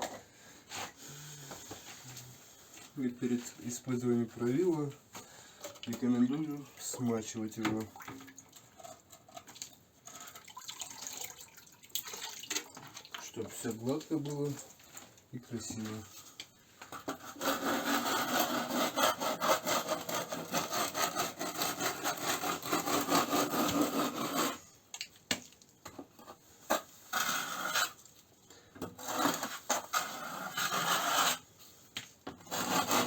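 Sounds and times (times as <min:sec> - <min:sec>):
plastering rule scraping render: 0:17.0 - 0:24.6, 0:26.3 - 0:28.1, 0:29.0 - 0:33.0.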